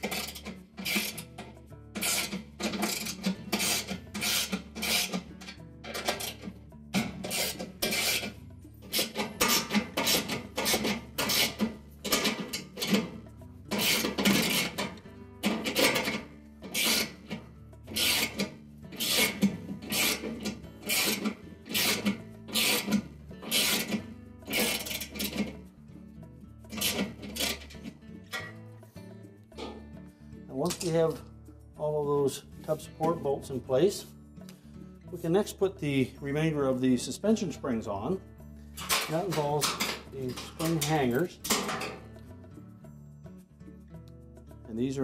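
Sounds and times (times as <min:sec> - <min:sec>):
ratchet clicking: 0:00.0 - 0:01.4, 0:02.0 - 0:13.1, 0:13.7 - 0:25.6, 0:26.7 - 0:27.9.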